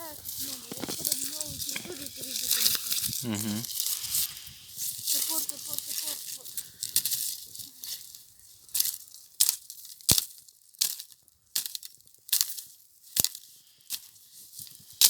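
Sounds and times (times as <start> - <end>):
footsteps crunching through snow: 0.0 - 11.1.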